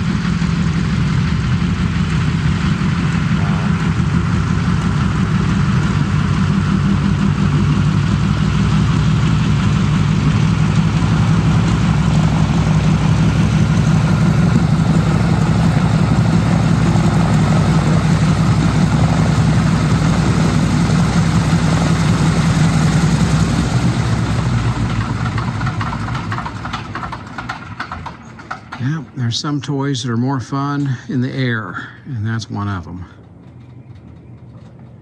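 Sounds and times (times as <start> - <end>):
propeller plane piston engine: 0.0 - 35.0.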